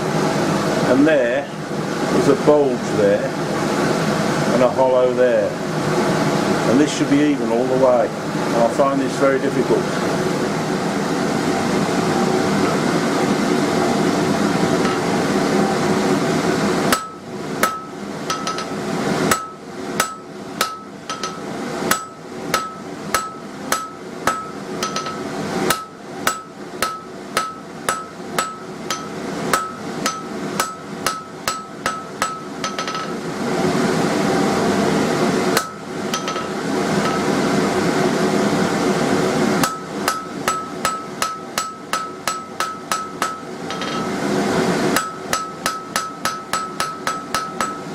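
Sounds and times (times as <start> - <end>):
hammer striking steel on anvil: 14.8 - 15.1, 16.9 - 33.2, 35.6 - 37.4, 39.6 - 44.2, 45.0 - 47.9.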